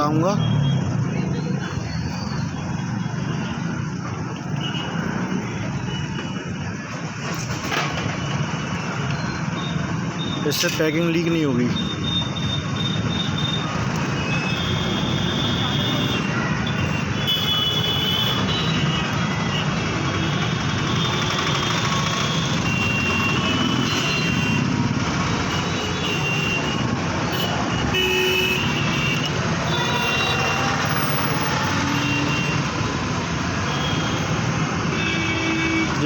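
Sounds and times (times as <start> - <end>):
road traffic noise: 0.0 - 36.0
vehicle horn toots: 25.8 - 31.3.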